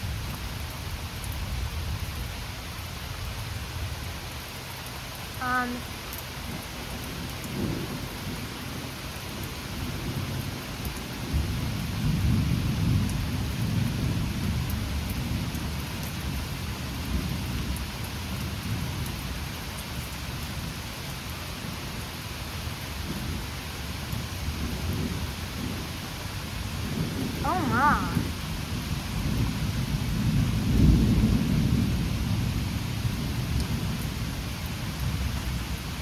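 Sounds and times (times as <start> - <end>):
steady rain: 0.0 - 36.0
rolling thunder: 11.2 - 16.3, 24.1 - 35.6.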